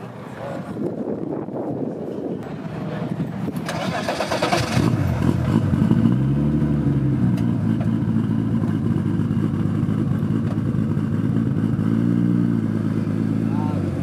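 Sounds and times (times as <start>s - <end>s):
car engine revving and idling: 3.7s - 14.0s.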